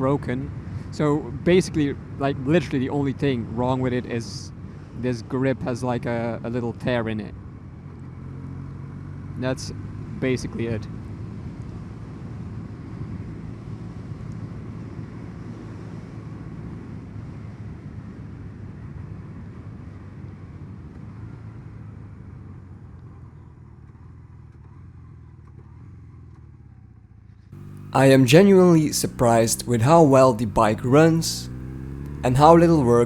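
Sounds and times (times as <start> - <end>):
motorcycle engine running: 27.6 - 33.0.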